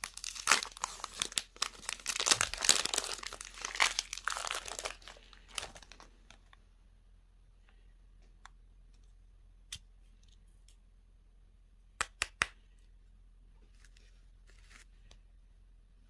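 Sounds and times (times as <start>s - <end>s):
packaging rustling: 0.0s - 6.4s.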